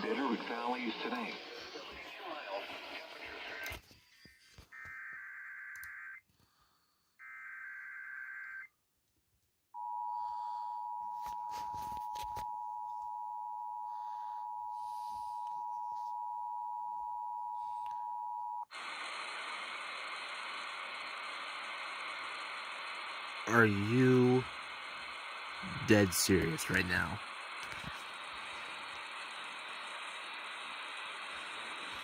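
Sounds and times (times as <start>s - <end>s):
loud static hiss: 18.7s - 32.0s.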